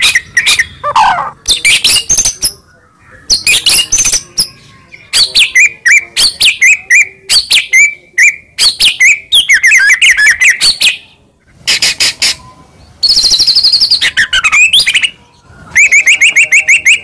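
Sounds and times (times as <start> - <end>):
bird singing whistled notes: 12.3 - 17.0.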